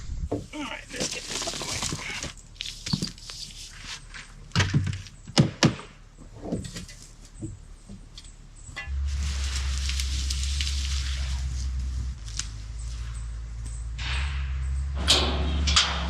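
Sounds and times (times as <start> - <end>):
steady low rumble: 0.0 - 1.0, 7.6 - 16.0
thuds and knocks of objects: 4.5 - 8.0.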